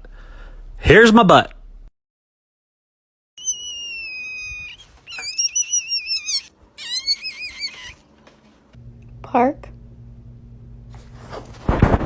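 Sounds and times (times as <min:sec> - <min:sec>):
high-pitched whistle-like animal call: 0:03.4 - 0:08.0.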